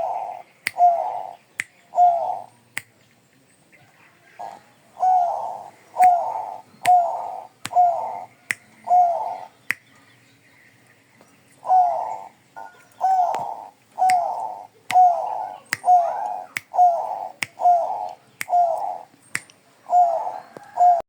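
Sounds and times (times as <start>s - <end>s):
dove cooing: 0.0s - 2.5s, 4.4s - 9.6s, 11.6s - 19.1s, 19.8s - 21.0s.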